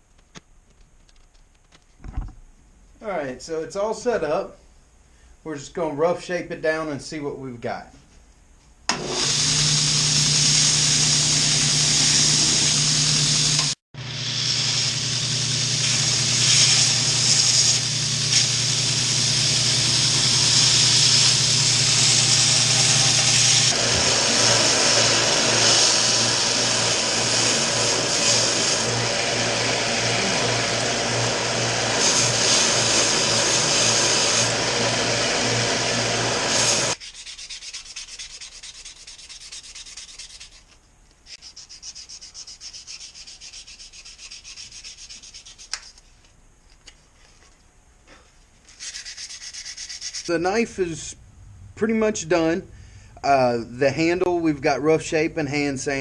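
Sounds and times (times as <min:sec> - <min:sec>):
belt sander grinding antler: 0:08.9 - 0:37.0.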